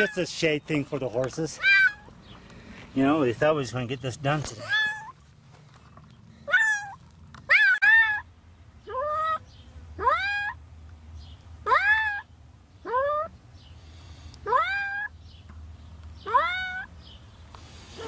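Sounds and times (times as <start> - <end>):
cat meowing: 1.6 - 2.1, 4.6 - 5.1, 6.5 - 8.2, 16.3 - 16.9.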